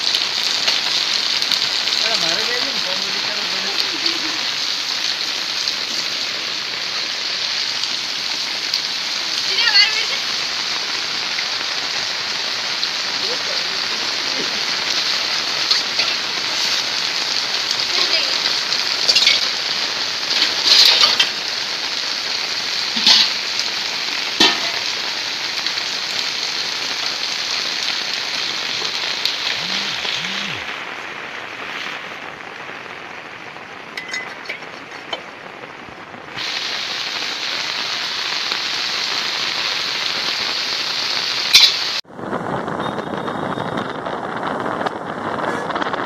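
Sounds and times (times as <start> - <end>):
raindrops tapping: 0.0 - 32.6, 33.2 - 46.0
heavy rain hissing over water: 0.0 - 46.0
wind on microphone: 42.1 - 46.0.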